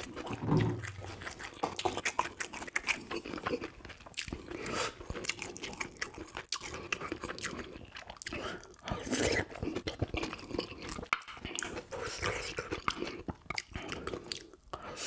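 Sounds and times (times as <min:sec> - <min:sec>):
wet slurp from a spoon: 0:00.0 - 0:03.6
close chewing with crunches: 0:00.0 - 0:15.0.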